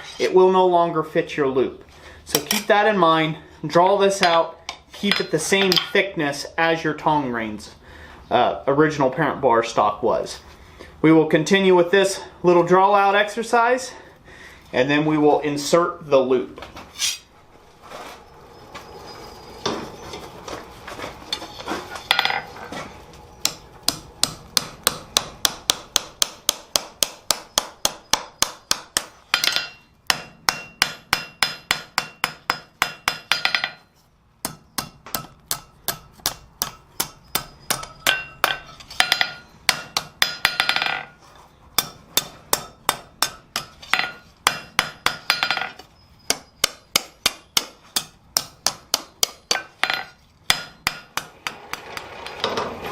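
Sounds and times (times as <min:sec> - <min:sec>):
hammer striking steel on anvil: 0:17.0 - 0:17.3, 0:23.4 - 0:41.1, 0:41.8 - 0:51.8.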